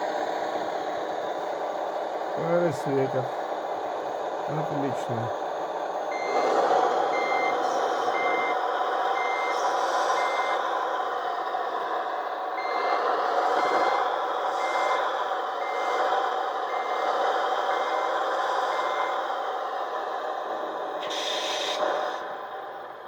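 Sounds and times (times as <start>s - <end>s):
truck engine drone: 0.0s - 23.0s
reversing alarm beeps: 6.1s - 10.6s, 12.6s - 15.0s, 15.6s - 19.2s.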